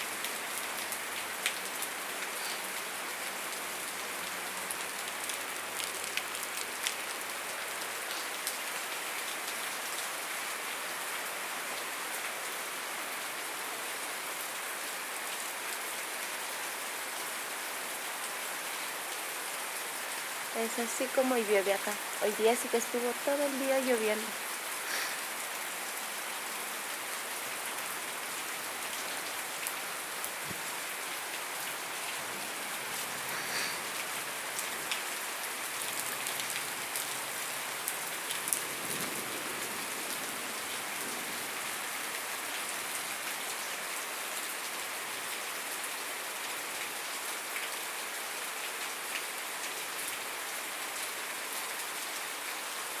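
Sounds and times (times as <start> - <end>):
heavy rain hissing: 1.9 - 4.6, 19.9 - 43.8.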